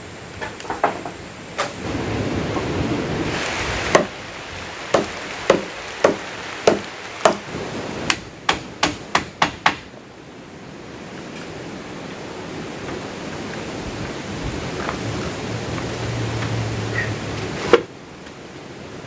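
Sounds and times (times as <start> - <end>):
tool striking wood: 3.9 - 4.1, 4.9 - 7.4, 8.1 - 9.9.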